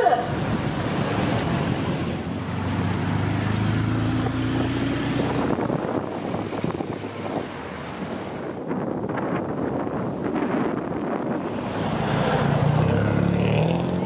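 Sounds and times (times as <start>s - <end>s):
street noise: 0.0s - 14.0s
car engine pulling away: 0.9s - 8.1s.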